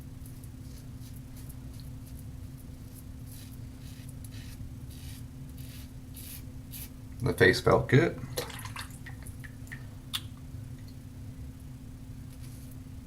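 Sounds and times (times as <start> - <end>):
low room hum: 0.0 - 13.0
razor scraping stubble: 0.3 - 7.0.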